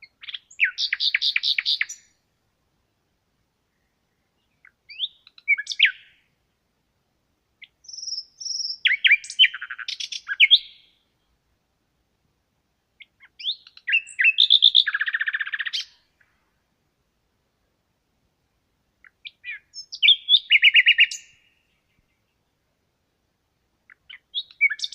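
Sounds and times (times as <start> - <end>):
songbird chirping and trilling: 0.0 - 2.2, 3.7 - 6.4, 7.6 - 11.4, 13.0 - 16.4, 19.0 - 22.6, 23.8 - 24.9.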